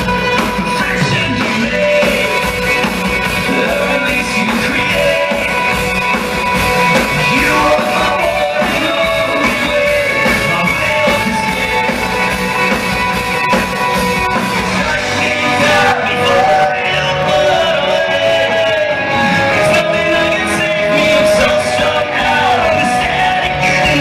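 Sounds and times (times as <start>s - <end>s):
drums: 0.0s - 24.0s
electric guitars: 0.0s - 24.0s
lead vocal singing: 0.4s - 12.8s, 14.3s - 24.0s.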